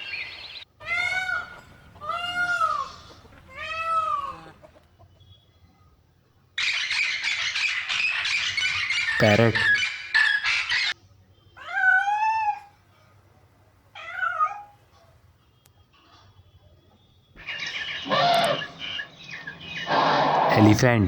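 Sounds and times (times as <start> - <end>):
parrot squawking and crying: 0.0 - 4.8, 6.6 - 11.0, 11.6 - 12.7, 17.4 - 20.8.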